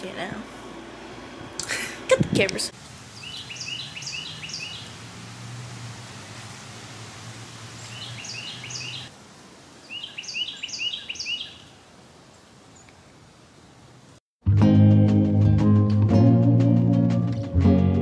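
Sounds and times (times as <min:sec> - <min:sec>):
songbird chirping: 0:03.1 - 0:05.0, 0:07.7 - 0:09.1, 0:09.7 - 0:13.9.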